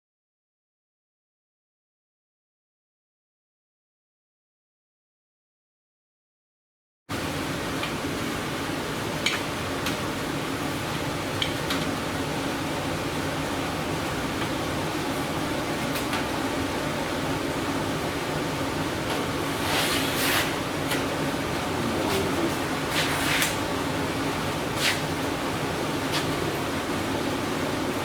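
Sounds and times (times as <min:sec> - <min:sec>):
mechanical hum: 0:07.1 - 0:28.0.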